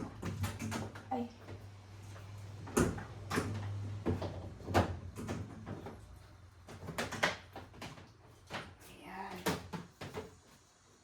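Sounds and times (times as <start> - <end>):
plastic knocks and clacks: 2.7 - 8.8.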